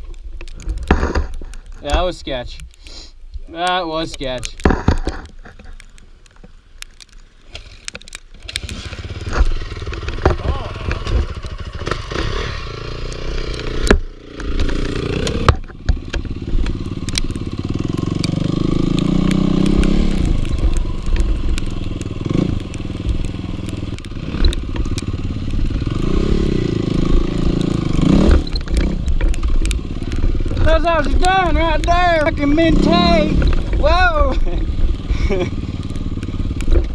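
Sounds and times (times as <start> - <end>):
dirt bike engine revving: 8.4 - 36.9.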